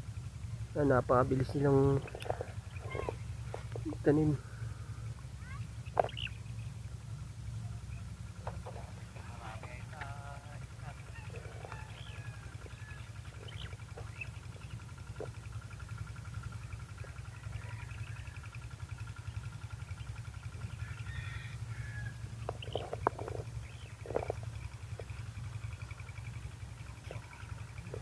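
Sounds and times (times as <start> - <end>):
steady low rumble: 0.0 - 28.0
faint bird chirps: 4.3 - 8.3, 10.3 - 28.0.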